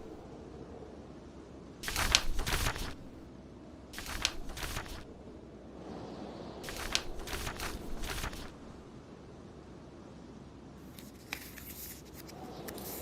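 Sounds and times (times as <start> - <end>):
storm wind: 0.0 - 10.9
book pages turning: 1.8 - 3.2, 4.0 - 5.1, 6.6 - 8.8, 10.9 - 13.0.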